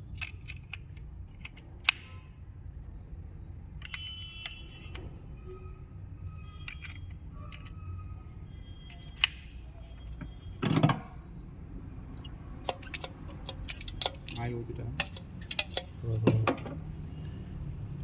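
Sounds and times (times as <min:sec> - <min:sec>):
metal tools clinking: 0:12.7 - 0:16.5.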